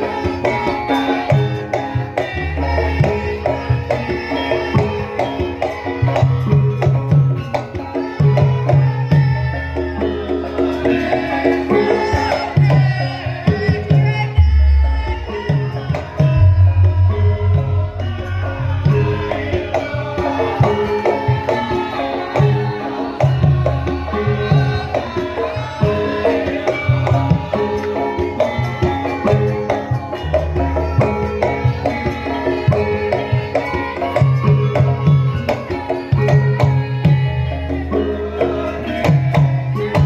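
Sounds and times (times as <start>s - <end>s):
hand drum beating busy rhythm: 0.0s - 40.0s
ringing pitched metal instruments: 0.0s - 40.0s
deep gong notes: 16.4s - 19.6s.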